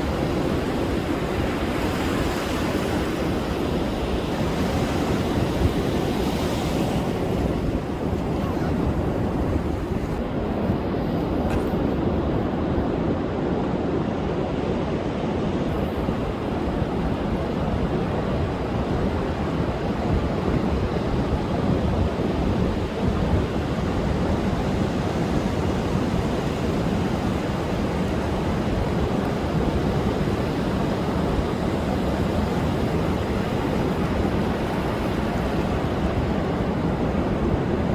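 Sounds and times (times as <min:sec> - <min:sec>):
storm surf breaking: 0:00.0 - 0:12.8
wind on microphone: 0:00.0 - 0:37.9.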